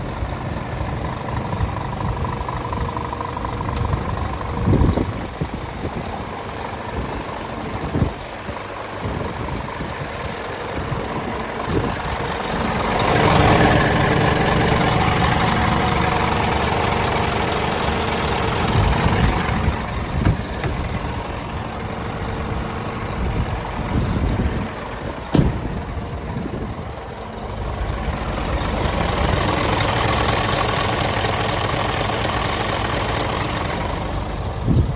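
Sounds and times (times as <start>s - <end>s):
diesel truck engine idling: 0.0s - 34.9s
sharp knocks: 25.3s - 25.8s.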